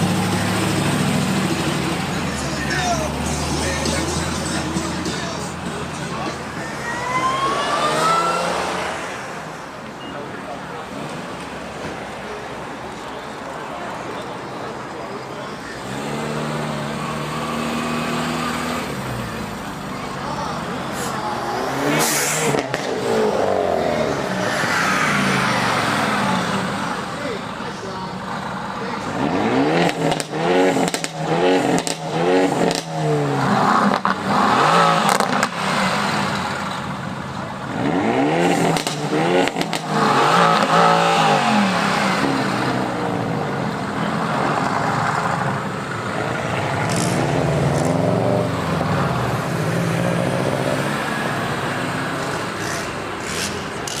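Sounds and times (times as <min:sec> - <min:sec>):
car exhaust revving: 0:29.0 - 0:54.0.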